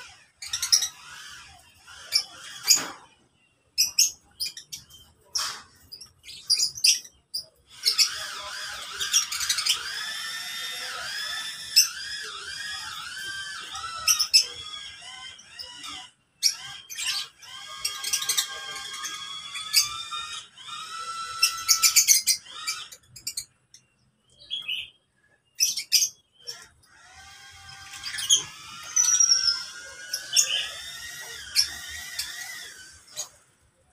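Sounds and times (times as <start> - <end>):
birds chattering and trilling: 0.0 - 33.9
sharp bird chirps: 21.4 - 33.4.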